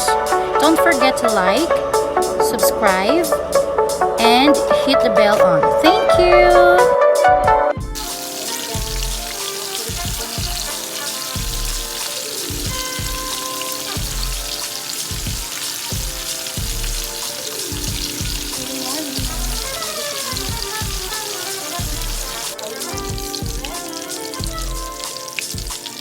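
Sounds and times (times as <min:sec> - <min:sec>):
background music with beat: 0:00.0 - 0:26.0
pork chops sizzling in oil: 0:08.0 - 0:26.0.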